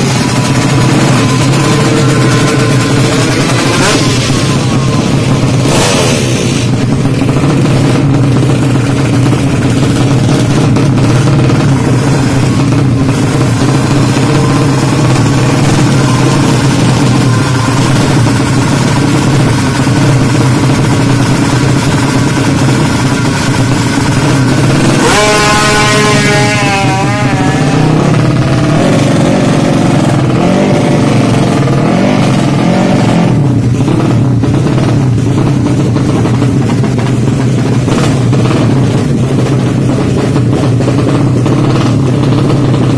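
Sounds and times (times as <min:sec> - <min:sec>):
engine revving hard: 0:00.0 - 0:08.4, 0:09.9 - 0:34.9
motorcycle engines running: 0:00.0 - 0:42.9
motorcycle passing by: 0:24.8 - 0:33.3.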